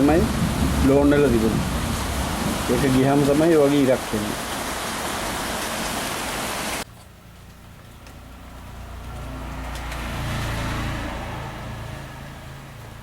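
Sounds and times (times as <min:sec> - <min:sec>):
passing road vehicle rumble: 0:00.0 - 0:03.6, 0:04.4 - 0:13.0
loud steady hiss: 0:00.0 - 0:06.9.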